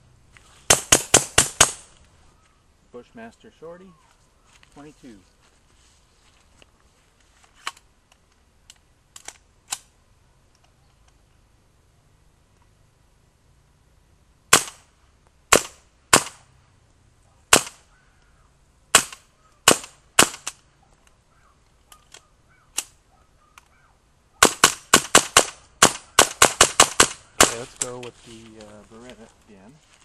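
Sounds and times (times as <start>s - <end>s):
suppressed rifle shots: 0.7s - 1.9s, 14.5s - 14.9s, 15.5s - 16.4s, 17.5s - 17.9s, 18.9s - 20.6s, 24.4s - 27.8s.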